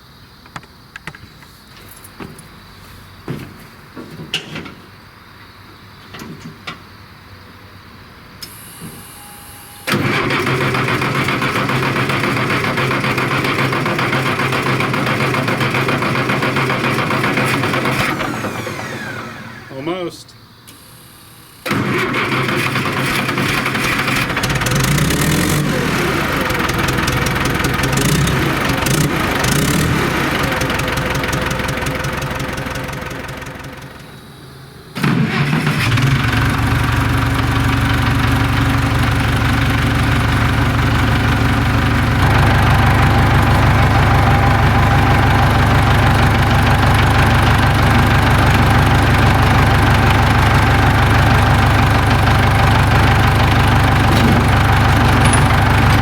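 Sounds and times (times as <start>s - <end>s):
diesel engine running and idling: 8.4s - 56.0s.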